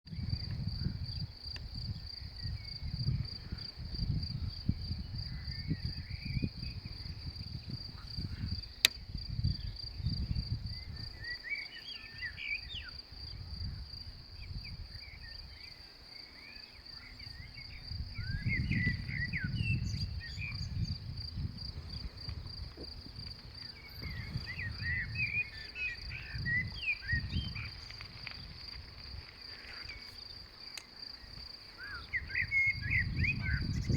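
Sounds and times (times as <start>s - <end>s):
insects chirring: 0.1s - 33.9s
wind rumbling on microphone: 0.1s - 33.9s
birds chirping: 10.7s - 13.1s, 21.8s - 28.6s, 29.4s - 33.9s.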